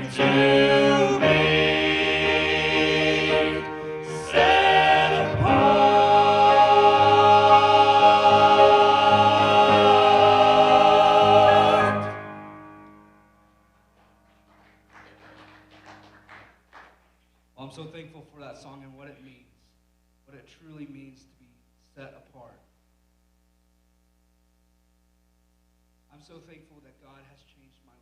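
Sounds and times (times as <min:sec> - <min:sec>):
vocal group singing: 0:00.0 - 0:12.3.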